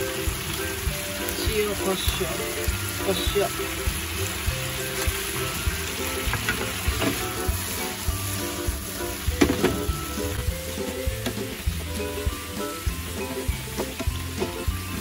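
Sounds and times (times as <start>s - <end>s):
vegetables sizzling in frying pan: 0.0s - 15.0s
wooden spatula knocking and scraping pan: 6.2s - 7.6s.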